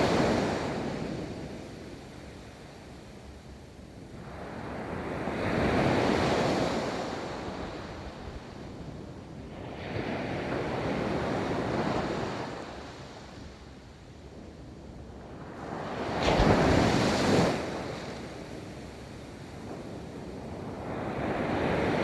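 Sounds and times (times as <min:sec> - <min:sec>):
ocean waves breaking on beach: 0:15.9 - 0:18.4.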